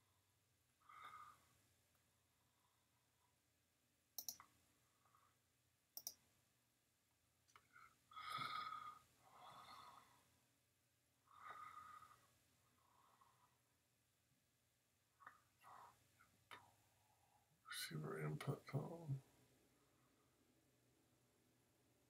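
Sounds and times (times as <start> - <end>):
soft breaths: 0.0 - 3.4, 7.6 - 10.4, 11.2 - 13.8
computer mouse clicks: 4.2 - 4.6, 6.0 - 6.2.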